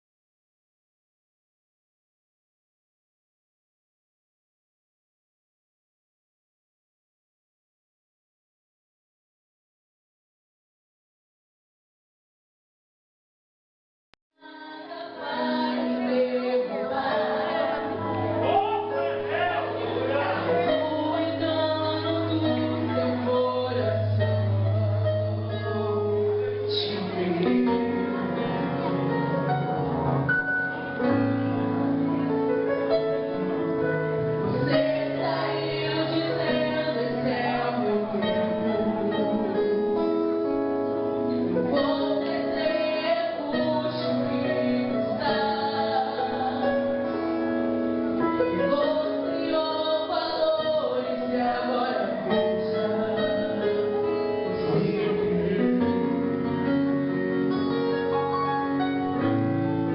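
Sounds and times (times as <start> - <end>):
person singing: 14.4 - 29.0, 34.4 - 40.0, 41.5 - 47.0, 48.5 - 56.5
gospel band playing: 15.1 - 59.9.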